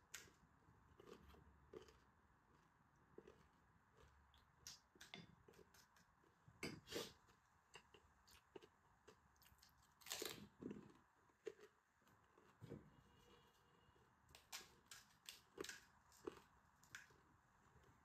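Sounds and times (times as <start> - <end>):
chewing crisp shells: 0.9 - 6.3, 14.4 - 17.2.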